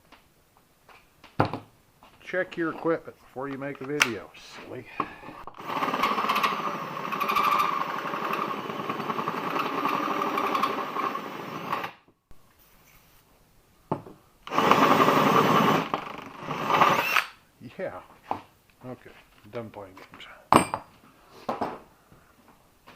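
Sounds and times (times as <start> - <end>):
drill hole saw chattering: 5.6 - 11.9, 14.5 - 17.4.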